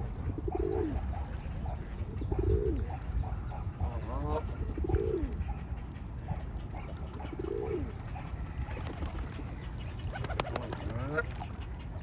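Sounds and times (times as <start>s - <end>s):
pigeon cooing: 10.1s - 11.2s.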